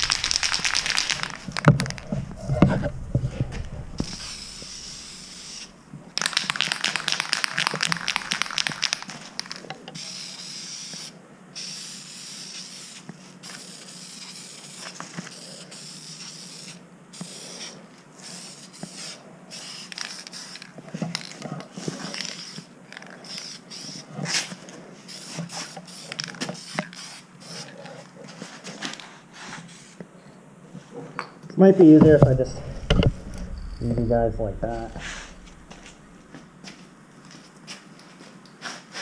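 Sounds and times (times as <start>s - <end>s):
spray-paint can hissing: 4.0s - 14.9s, 15.7s - 20.6s, 23.2s - 24.0s, 25.1s - 26.0s, 26.6s - 27.6s.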